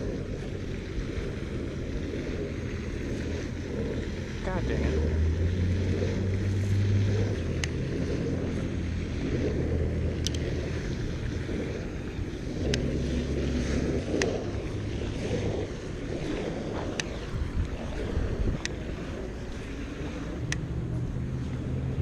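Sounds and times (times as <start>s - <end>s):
wind buffeting microphone: 0.0s - 22.0s
sharp clicks: 10.2s - 10.4s.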